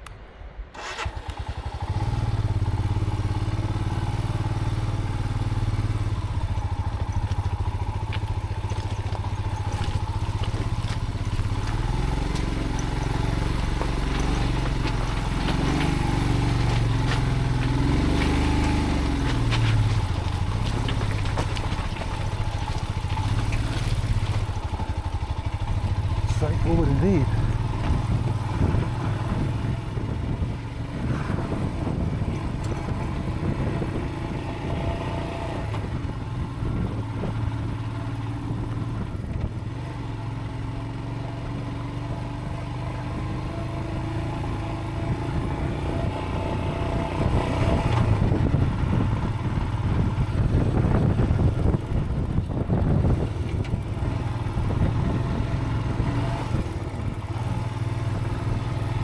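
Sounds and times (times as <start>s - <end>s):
motorcycle engine running: 0.8s - 59.0s
knocks and rattles on gravel: 6.0s - 34.1s.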